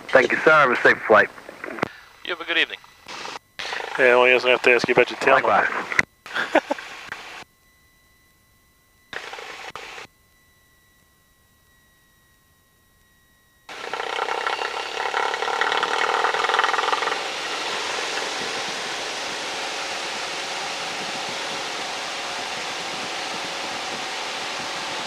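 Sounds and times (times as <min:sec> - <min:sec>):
light aircraft engine and airflow: 0:00.0 - 0:07.5, 0:13.7 - 0:25.0
faint high steady whine: 0:00.0 - 0:25.0.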